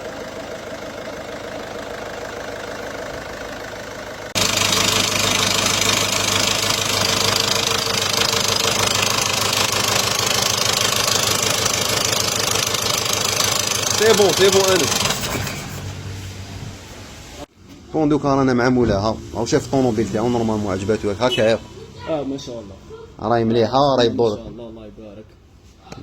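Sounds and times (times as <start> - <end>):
engine knocking clatter: 0.0 - 15.8
diesel engine idling: 0.0 - 16.5.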